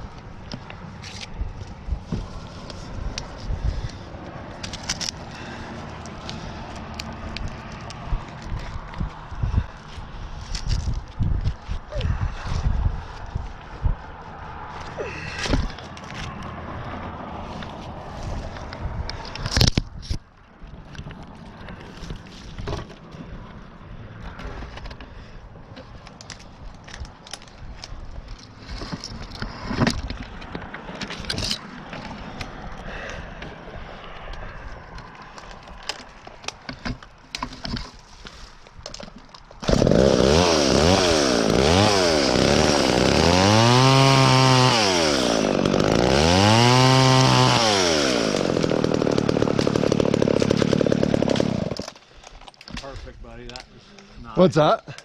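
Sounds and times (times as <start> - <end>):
chainsaw cutting through branch: 39.6 - 52.1.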